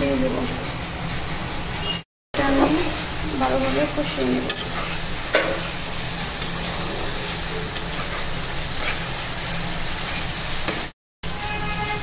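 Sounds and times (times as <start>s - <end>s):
spice paste sizzling in oil: 2.4s - 12.0s
spatula scraping pan: 3.4s - 5.8s, 6.6s - 10.8s.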